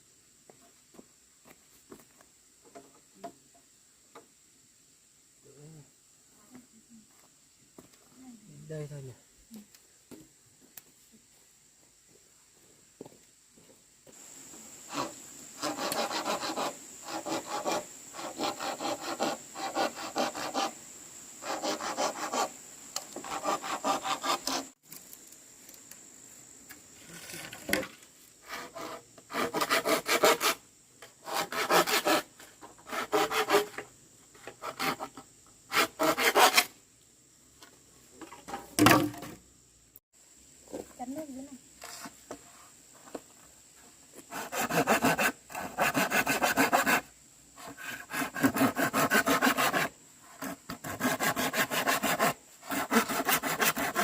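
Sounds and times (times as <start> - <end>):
handsaw cutting wood: 14.9 - 20.8, 21.4 - 24.7, 28.4 - 30.6, 31.2 - 33.8, 34.6 - 35.1, 35.7 - 36.7, 44.3 - 54.0.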